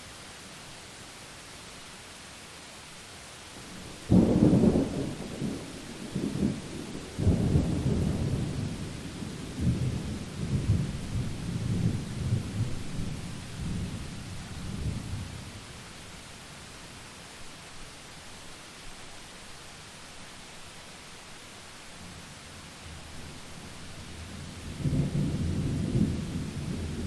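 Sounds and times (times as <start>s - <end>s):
steady rain: 0.0s - 27.0s
thunder rumbling: 3.7s - 15.4s, 24.5s - 27.0s.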